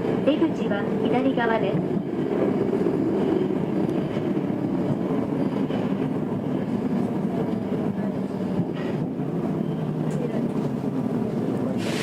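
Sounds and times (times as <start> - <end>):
subway car rumbling in tunnel: 0.0 - 12.0.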